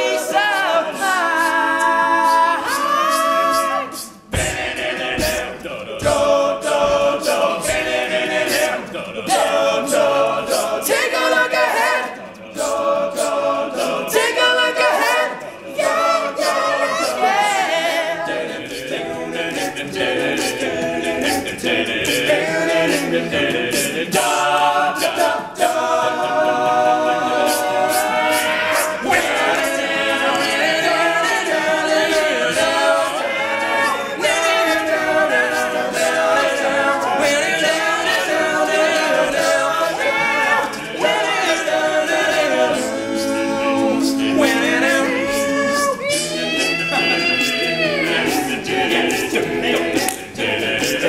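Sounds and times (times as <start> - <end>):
male a cappella group singing: 0.0 - 51.0.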